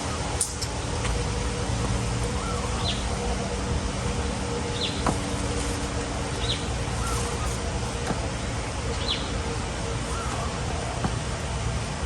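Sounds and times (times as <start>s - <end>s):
high falling bird chirps: 2.2s - 10.8s.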